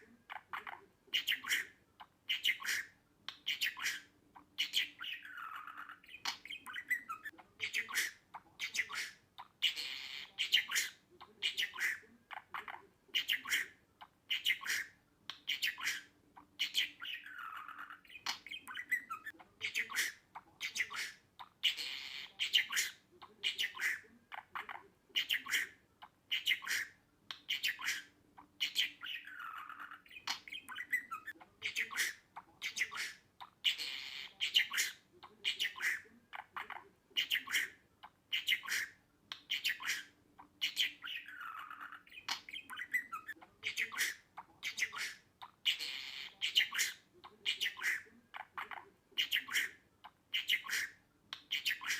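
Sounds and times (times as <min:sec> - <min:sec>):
budgerigar chirping and squawking: 0:00.0 - 0:51.9.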